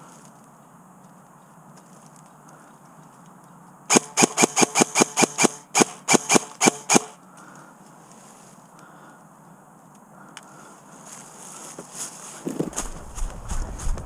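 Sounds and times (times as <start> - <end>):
airsoft gun shots: 3.9 - 7.2.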